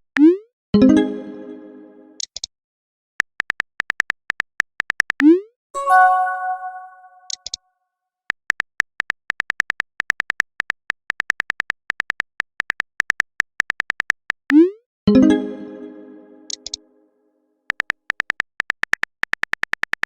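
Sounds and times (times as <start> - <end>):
notification chime: 5.8 - 7.4.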